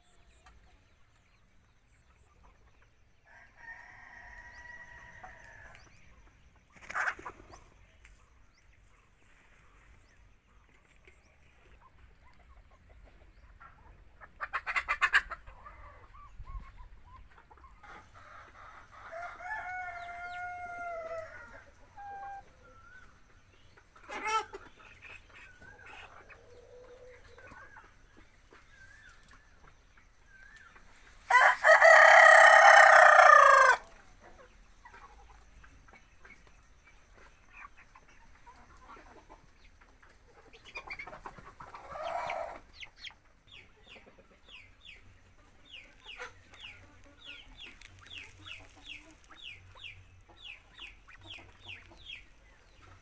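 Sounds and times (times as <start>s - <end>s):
chickens calling: 0.0s - 53.0s
rapid rattling chicken calls: 2.4s - 53.0s
rooster crowing: 19.1s - 21.5s, 31.3s - 33.9s.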